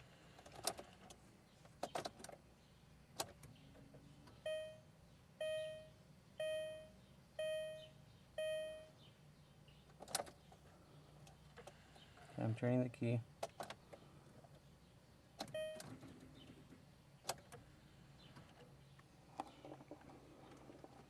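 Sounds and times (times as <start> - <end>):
dashboard warning chime: 4.4 - 9.0, 15.5 - 15.9.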